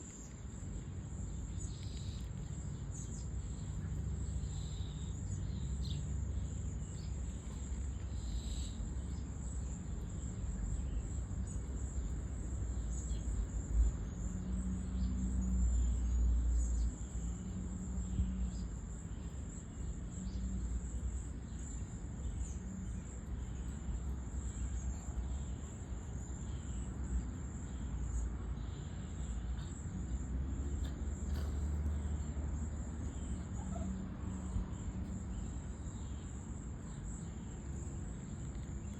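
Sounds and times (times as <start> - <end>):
high-pitched insect chorus: 0.0 - 38.9
short bird calls: 33.4 - 34.0.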